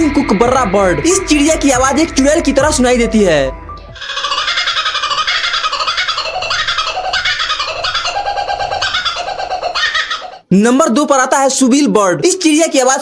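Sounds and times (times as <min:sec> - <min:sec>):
kookaburra laughing call: 0:04.0 - 0:10.5.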